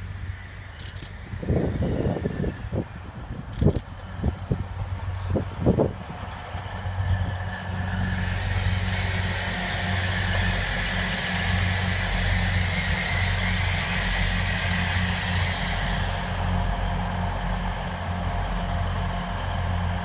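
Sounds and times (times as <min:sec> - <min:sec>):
diesel engines droning: 0:00.0 - 0:20.0
wheels rushing on rails: 0:00.0 - 0:20.0.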